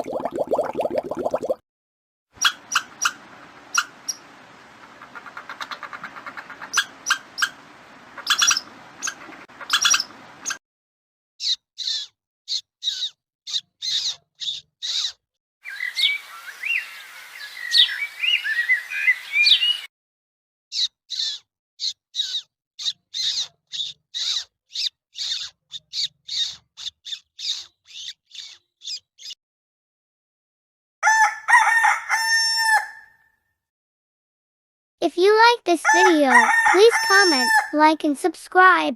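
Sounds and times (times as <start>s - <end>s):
warbling bird song: 2.4s - 10.6s, 11.4s - 19.9s, 20.7s - 29.4s
small animal chirping: 8.3s - 10.6s, 11.4s - 15.2s, 20.7s - 29.4s.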